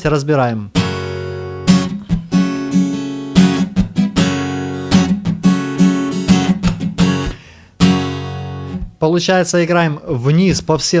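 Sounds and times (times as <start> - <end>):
acoustic guitar strumming: 0.7 - 9.0.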